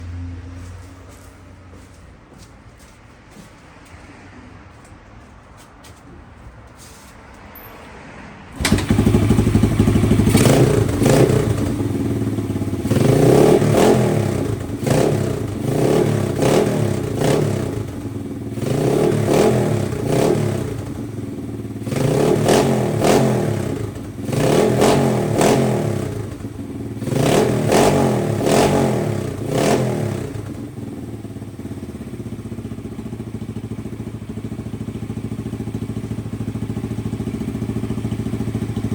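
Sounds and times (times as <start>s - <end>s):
motorcycle engine revving: 8.5s - 38.9s
motorcycle engine starting: 8.5s - 38.9s.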